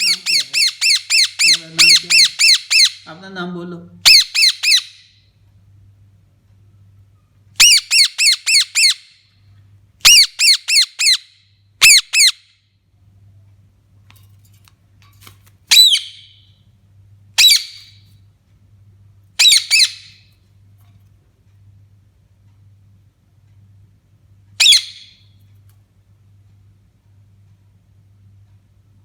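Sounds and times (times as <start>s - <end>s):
parrot squawking: 0.0s - 3.1s, 4.0s - 5.0s, 7.6s - 9.0s, 10.0s - 12.4s, 15.7s - 16.4s, 17.4s - 18.0s, 19.4s - 20.2s, 24.6s - 25.2s.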